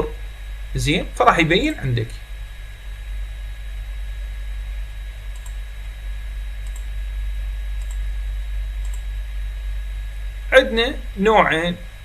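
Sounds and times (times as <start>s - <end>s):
thin high whine: 0.0s - 3.2s, 10.0s - 12.0s
electrical hum: 0.0s - 12.0s
faint clicks: 5.3s - 5.6s, 6.6s - 6.9s, 7.8s - 8.0s, 8.8s - 9.1s.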